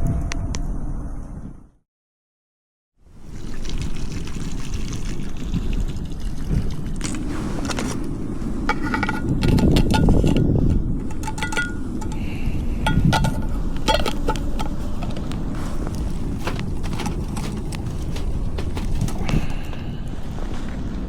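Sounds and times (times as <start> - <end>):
low rumble: 6.3 - 21.0
metallic clinks and taps: 8.7 - 12.3, 12.9 - 15.1.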